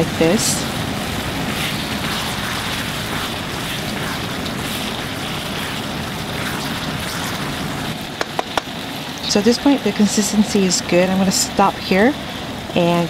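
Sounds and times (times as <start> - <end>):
stir fry sizzling in a pan: 0.0 - 13.0
wooden spatula stirring: 1.2 - 7.4.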